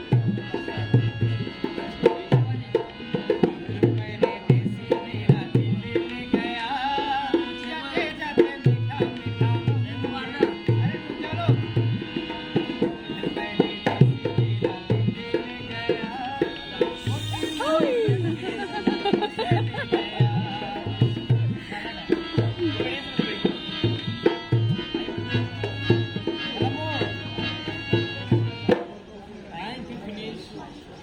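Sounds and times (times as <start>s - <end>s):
hand drum beating: 16.8s - 28.9s
wavering melodic line: 16.9s - 28.7s.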